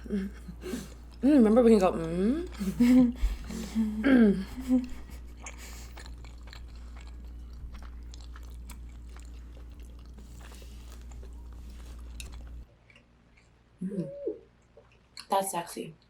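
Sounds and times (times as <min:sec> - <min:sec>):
low electrical hum: 0:00.0 - 0:16.0
chewing food: 0:04.6 - 0:13.6, 0:14.6 - 0:15.3.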